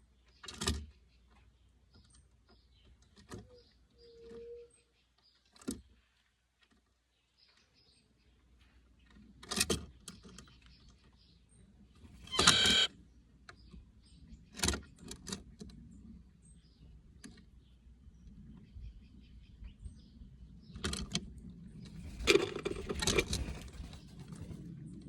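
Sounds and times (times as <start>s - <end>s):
jay calling: 12.3s - 12.9s.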